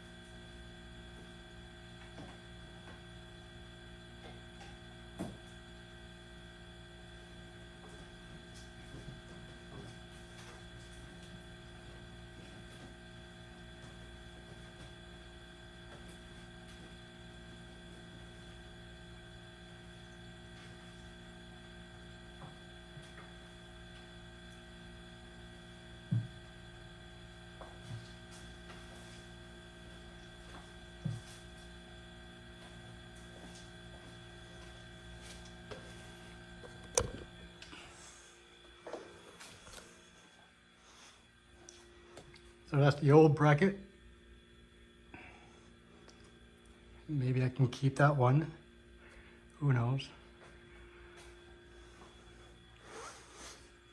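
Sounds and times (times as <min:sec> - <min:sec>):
electrical hum with tones: 0:00.0 - 0:53.9.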